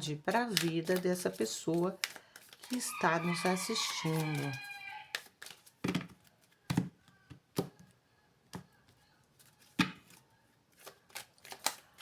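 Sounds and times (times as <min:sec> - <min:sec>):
cards shuffled on a table: 0:00.4 - 0:06.9, 0:10.8 - 0:12.0.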